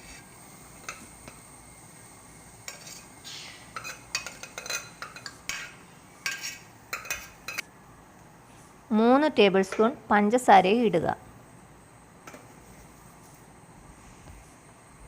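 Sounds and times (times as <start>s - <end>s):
spoon clinking and scraping a pan: 2.6s - 3.1s, 3.7s - 7.6s.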